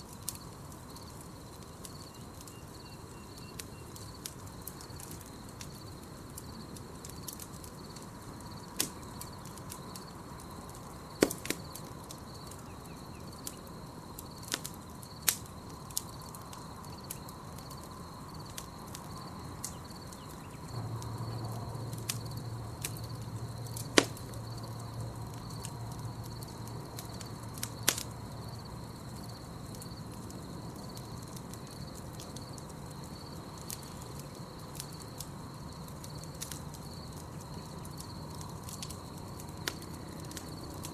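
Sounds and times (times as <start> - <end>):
campfire crackling and popping: 0.0 - 40.9
crickets trilling: 0.0 - 40.9.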